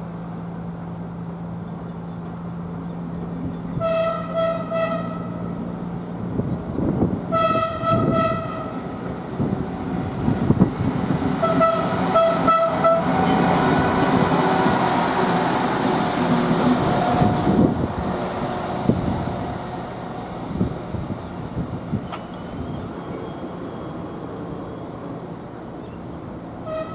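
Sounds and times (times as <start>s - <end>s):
train horn blasts: 3.8s - 5.6s, 7.3s - 9.0s, 11.4s - 13.6s, 26.6s - 26.9s
train wheels on rails: 8.0s - 26.9s.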